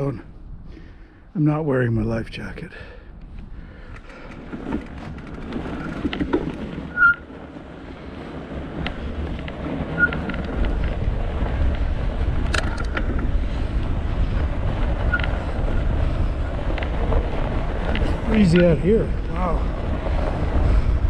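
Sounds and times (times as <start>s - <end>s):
wind buffeting microphone: 0.0s - 21.0s
low rumble: 0.1s - 21.0s
short high squeaks: 6.8s - 7.3s, 9.9s - 10.6s, 15.0s - 15.5s.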